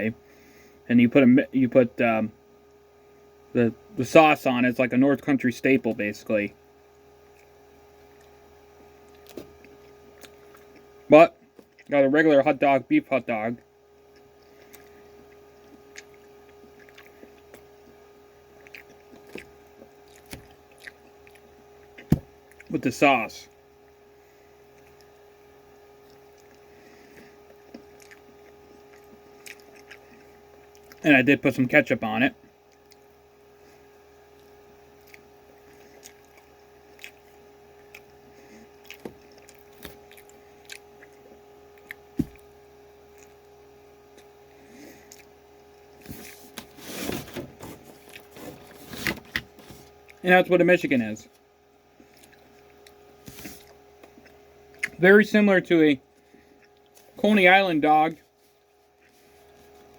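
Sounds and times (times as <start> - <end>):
steady hum: 0.0 - 59.9
chewing and wet mouth clicks: 14.1 - 17.7, 18.6 - 22.7, 27.5 - 31.0, 34.4 - 38.2, 38.8 - 42.0, 52.0 - 53.0
soft squishy sounds: 14.1 - 22.7, 33.7 - 42.5.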